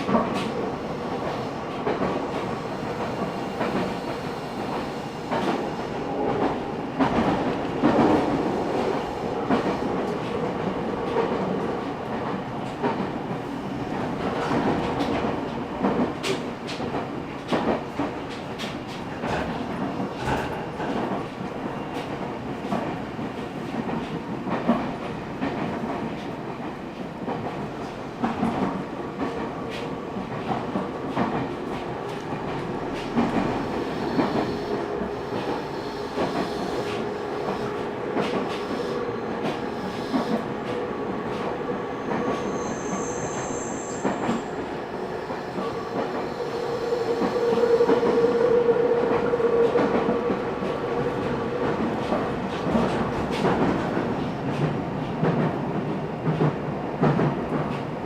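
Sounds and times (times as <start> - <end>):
high wheel squeal: 42.4 - 44.5.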